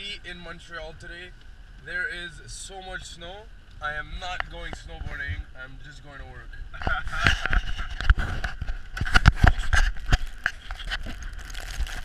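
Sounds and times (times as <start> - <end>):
camera handling noise: 6.8 - 11.3.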